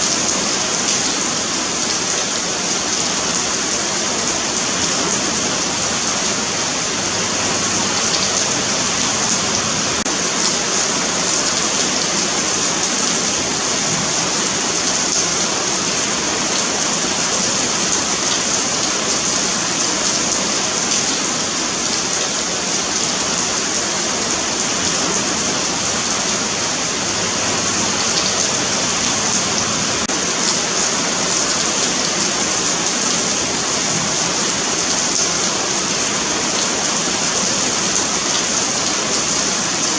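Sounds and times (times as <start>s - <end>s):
rain on pavement: 0.0s - 39.9s.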